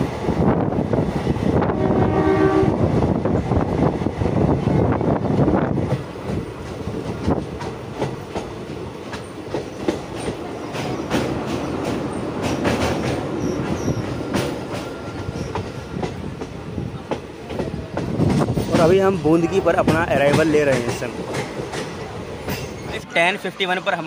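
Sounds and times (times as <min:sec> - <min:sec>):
train rumbling on track: 0:00.0 - 0:24.0
wheels clacking over rail joints: 0:05.7 - 0:23.0.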